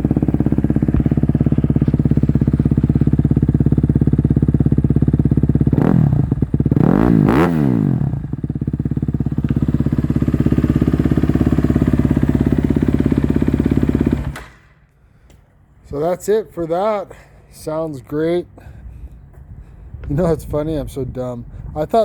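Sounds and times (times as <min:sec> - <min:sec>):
motorcycle engine idling and revving: 0:00.0 - 0:14.9.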